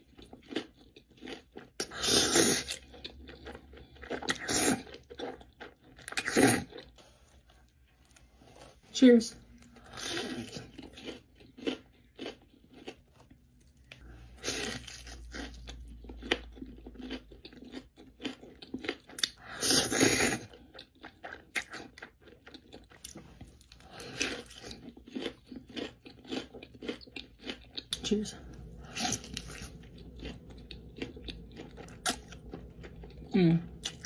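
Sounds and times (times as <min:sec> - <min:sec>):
person chewing: 0:00.0 - 0:08.8, 0:09.5 - 0:34.0
crunching bites of crisp food: 0:09.6 - 0:34.0.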